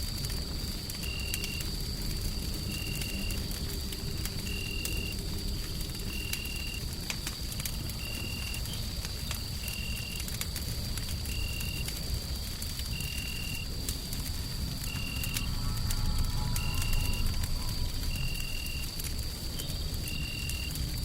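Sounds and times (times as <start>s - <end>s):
wood fire crackling: 0.0s - 21.0s
low noisy rumble: 12.0s - 21.0s
steady high tone: 14.9s - 19.0s.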